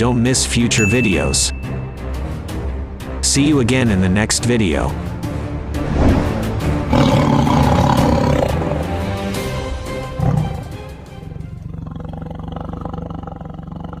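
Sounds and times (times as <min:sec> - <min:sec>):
background music: 0:00.0 - 0:11.9
tiger roaring: 0:06.8 - 0:08.7, 0:10.2 - 0:14.0.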